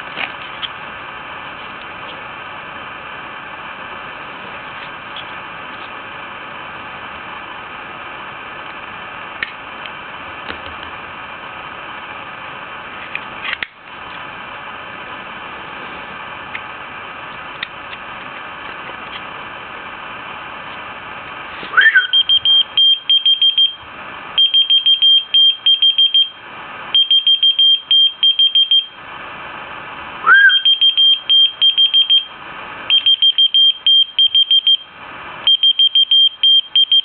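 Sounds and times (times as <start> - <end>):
rising whistle: 21.7 - 23.8, 30.2 - 32.3
rapid high-pitched beeps: 21.8 - 23.8.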